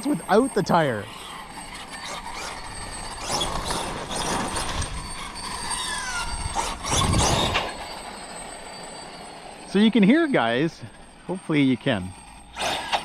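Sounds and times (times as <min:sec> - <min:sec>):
drivetrain whine: 0:00.0 - 0:13.0
tyre noise on pavement: 0:01.4 - 0:09.8.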